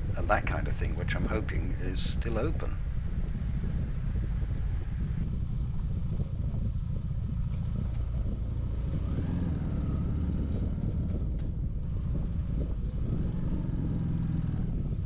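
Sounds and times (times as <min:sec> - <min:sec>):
motorcycle engine cruising: 0:00.0 - 0:05.2
wind on microphone: 0:00.0 - 0:05.2.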